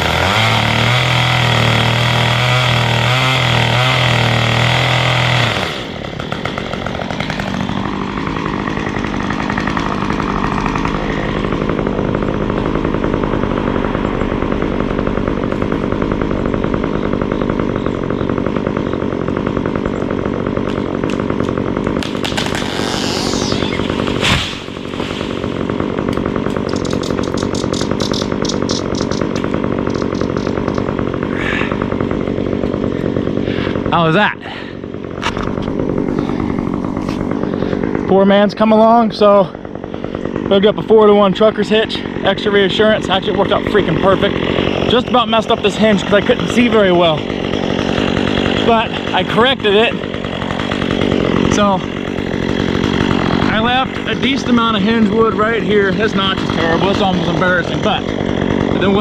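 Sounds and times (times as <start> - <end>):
chainsaw cutting and idling: 0.0 - 59.0
loud thump: 24.2 - 25.4.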